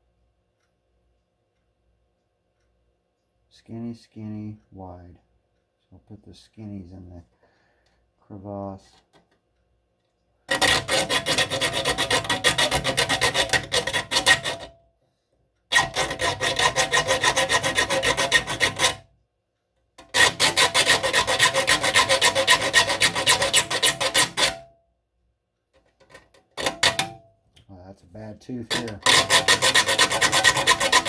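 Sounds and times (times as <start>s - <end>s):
file rasping on saw teeth: 10.5s - 14.8s, 15.7s - 19.1s, 20.0s - 24.7s, 26.6s - 27.2s, 28.7s - 31.0s.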